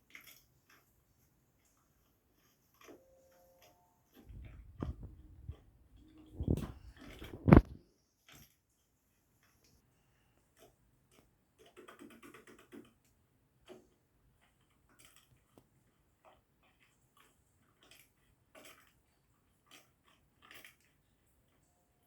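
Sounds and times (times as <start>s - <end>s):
handling clicks and rustles: 0.0s - 8.6s.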